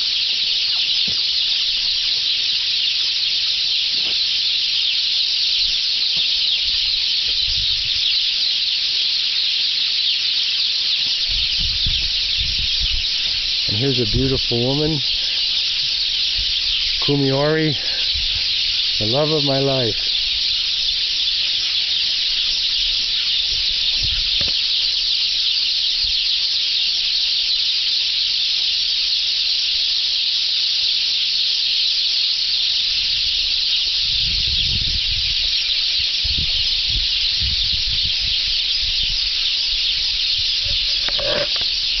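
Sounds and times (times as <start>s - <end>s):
small birds chirping: 0.0s - 42.0s
low wind rumble: 11.3s - 17.1s, 34.0s - 41.5s.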